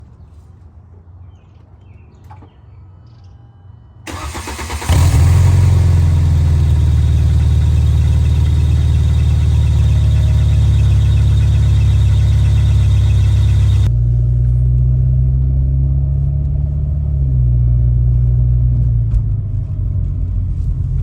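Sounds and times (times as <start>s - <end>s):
loud car engine idling: 4.1s - 13.9s
starter motor cranking: 4.1s - 13.9s.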